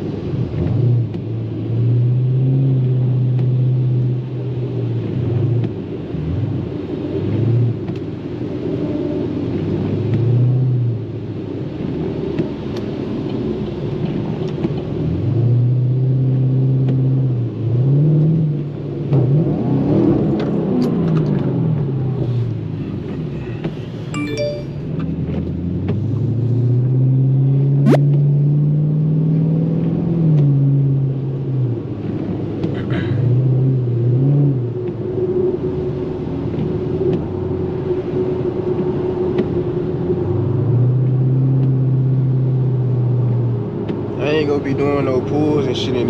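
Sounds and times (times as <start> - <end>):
car engine accelerating: 24.8 - 46.0.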